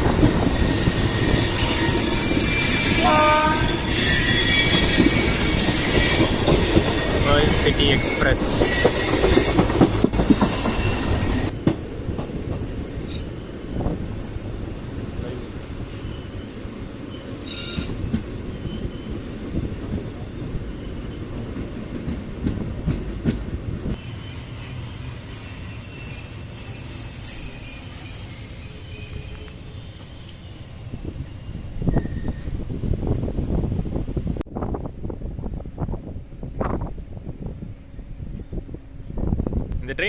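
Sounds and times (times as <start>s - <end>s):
train rumbling on rails: 0.0s - 40.0s
high wheel squeal: 0.4s - 21.4s, 24.0s - 32.6s
clicks of train wheels: 4.0s - 14.0s, 21.5s - 24.1s.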